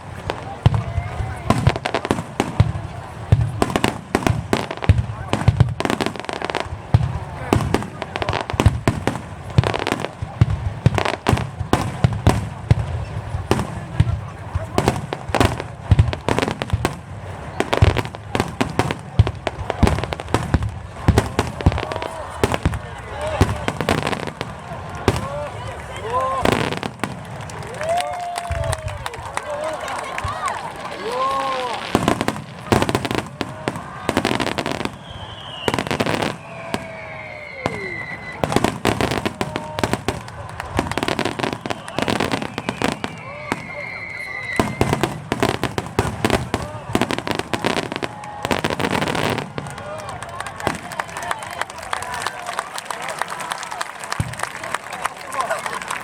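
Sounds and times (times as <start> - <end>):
fireworks bursting: 0.0 - 52.6
fireworks whistling falling in pitch: 31.1 - 40.2, 40.8 - 49.5.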